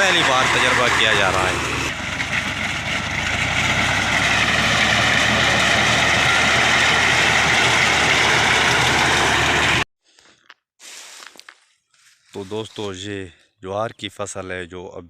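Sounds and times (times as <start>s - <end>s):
loud mechanical whir: 0.0s - 9.8s
harvester engine running: 0.0s - 9.9s.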